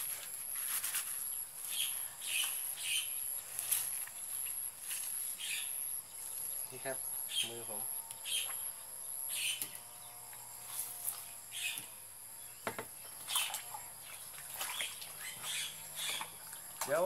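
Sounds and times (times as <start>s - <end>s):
birds chirping: 1.3s - 17.0s
sharp knocks from hands: 12.6s - 12.9s.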